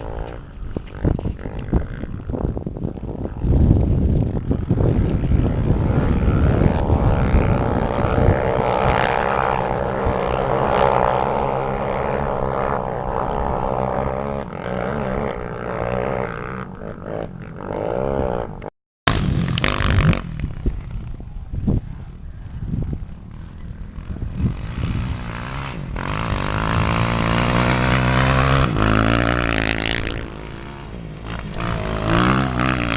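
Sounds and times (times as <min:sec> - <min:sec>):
race engine revving: 0:24.5 - 0:32.9.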